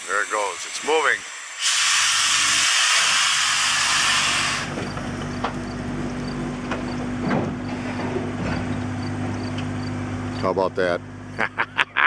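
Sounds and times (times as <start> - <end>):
locomotive exhaust hiss: 0.0 - 4.9
steady low hum: 4.6 - 12.0.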